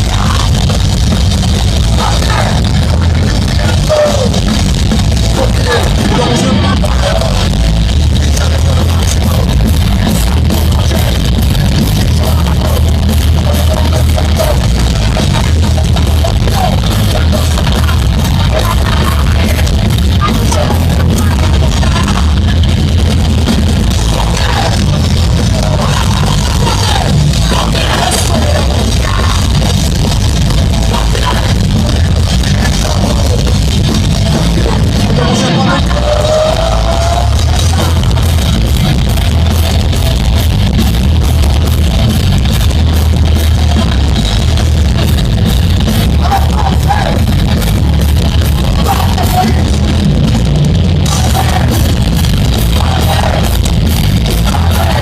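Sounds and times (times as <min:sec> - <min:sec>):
drum kit: 0:00.0 - 0:55.0
heavy rock band playing: 0:00.0 - 0:55.0
shouted vocals: 0:01.9 - 0:04.4, 0:24.0 - 0:29.6, 0:34.6 - 0:38.5, 0:48.6 - 0:49.9, 0:51.0 - 0:55.0.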